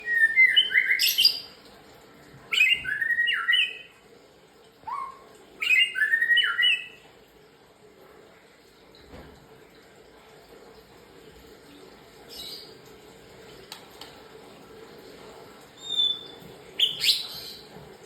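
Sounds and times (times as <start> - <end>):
songbird whistling: 2.6 - 3.9, 4.9 - 7.0, 15.8 - 17.6.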